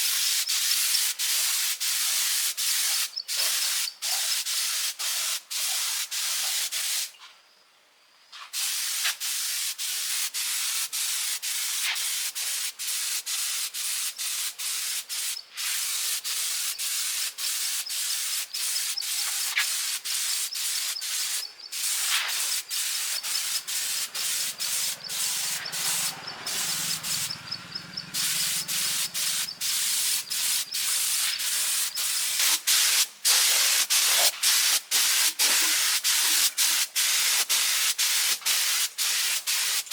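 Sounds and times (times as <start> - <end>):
hissing rubbing on metal: 17.4 - 27.4, 28.1 - 34.5.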